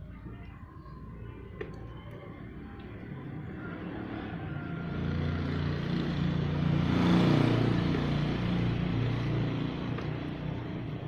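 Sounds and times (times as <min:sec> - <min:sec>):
vehicle passing by: 0:02.3 - 0:11.0.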